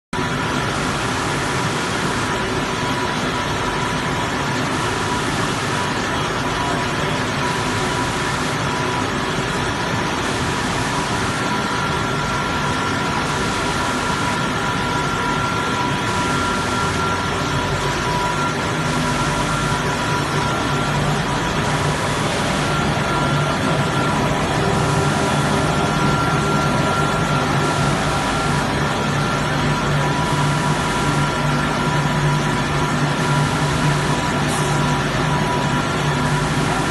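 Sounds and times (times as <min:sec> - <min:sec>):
glass washing machine drone: 0:00.2 - 0:36.9
high-pitched whines: 0:10.9 - 0:36.8.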